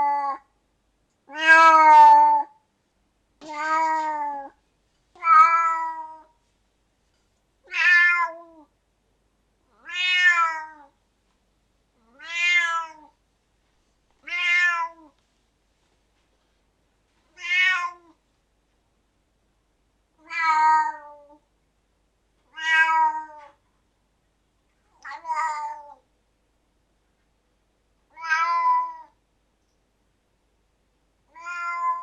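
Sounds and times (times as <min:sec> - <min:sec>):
cat meowing: 0:00.0 - 0:00.5, 0:01.3 - 0:02.6, 0:03.4 - 0:04.6, 0:05.2 - 0:06.4, 0:07.6 - 0:08.7, 0:09.7 - 0:11.0, 0:12.0 - 0:13.2, 0:14.2 - 0:15.2, 0:17.3 - 0:18.2, 0:20.2 - 0:21.4, 0:22.5 - 0:23.6, 0:25.0 - 0:26.0, 0:28.1 - 0:29.2, 0:31.3 - 0:32.0.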